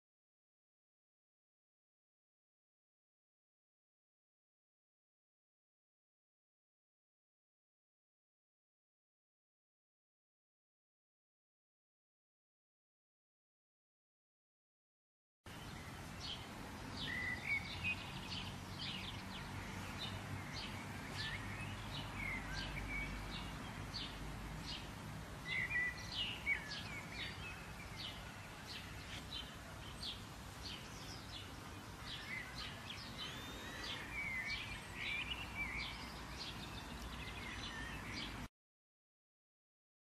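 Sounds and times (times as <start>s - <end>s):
birds chirping and calling: 17.0s - 38.5s.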